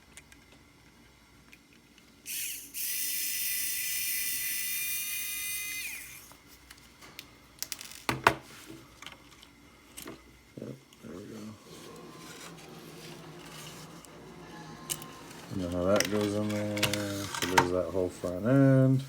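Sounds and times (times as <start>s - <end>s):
electric screwdriver whine: 2.3s - 6.4s.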